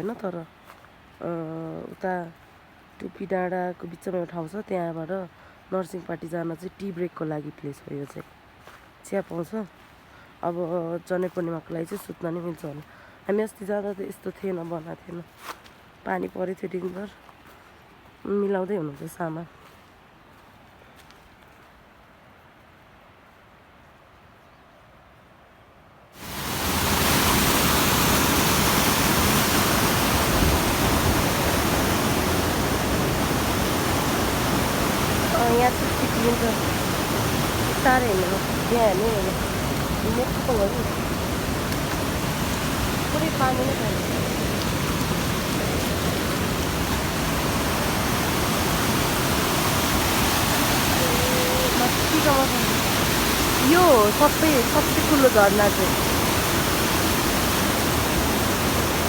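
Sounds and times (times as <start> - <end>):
waterfall rushing: 26.2 - 59.0.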